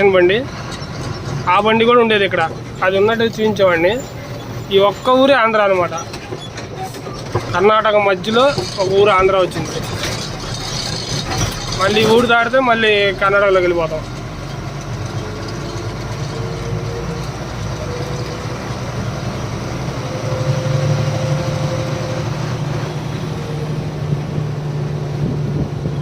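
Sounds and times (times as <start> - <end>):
diesel truck engine running: 0.0 - 26.0
road noise: 0.0 - 26.0.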